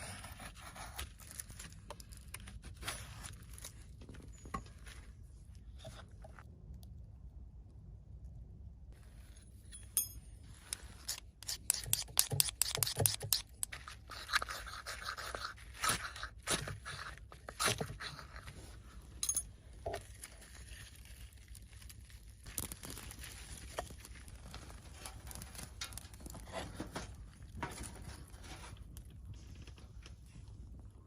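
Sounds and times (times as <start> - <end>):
hard objects clicking and scraping: 9.7 - 20.2.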